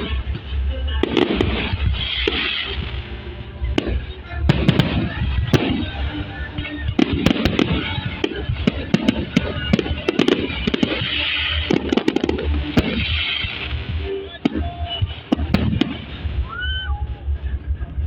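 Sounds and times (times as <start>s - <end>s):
fireworks bangs and crackles: 0.0s - 18.0s
music: 0.0s - 18.0s.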